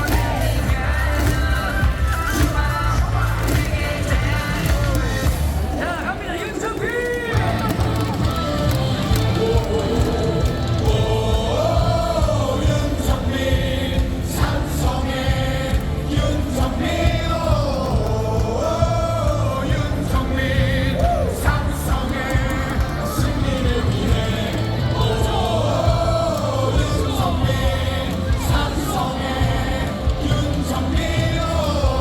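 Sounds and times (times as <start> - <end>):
amplified music with steady beat: 0.0 - 5.8
stadium crowd singing: 0.0 - 32.0.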